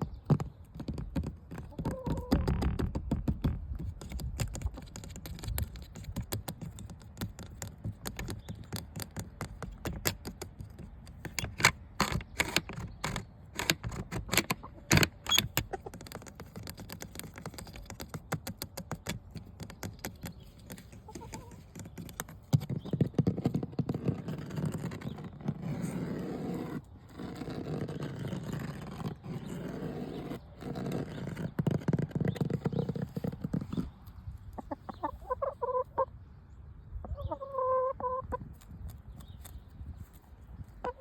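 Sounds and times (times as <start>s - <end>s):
fingernails tapping on hard object: 0.1s - 25.6s.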